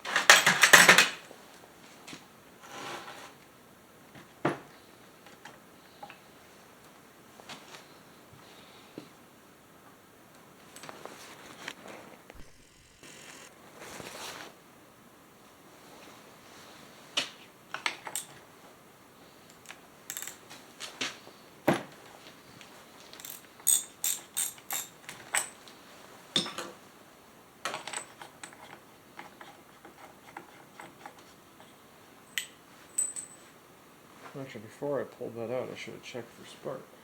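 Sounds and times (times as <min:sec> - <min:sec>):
hand tools clicking and knocking: 0:00.0 - 0:01.2.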